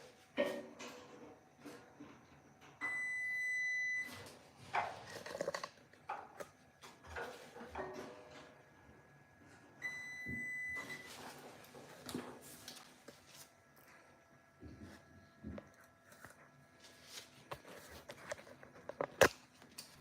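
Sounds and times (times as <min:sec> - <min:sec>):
multimeter continuity beep: 0:02.8 - 0:04.2, 0:09.8 - 0:11.2
knocks and clatter of handling probes: 0:04.7 - 0:08.5.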